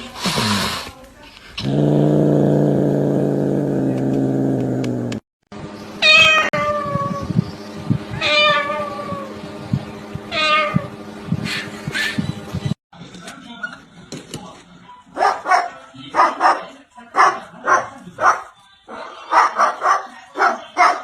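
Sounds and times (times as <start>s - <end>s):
cat meowing: 6.0s - 7.3s, 8.1s - 9.3s.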